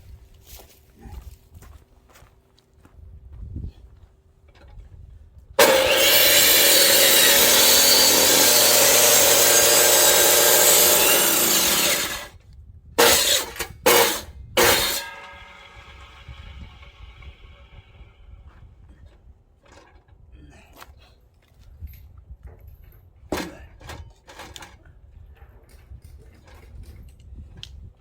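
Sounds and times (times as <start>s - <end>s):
power saw cutting log: 5.6s - 12.3s, 13.0s - 18.0s.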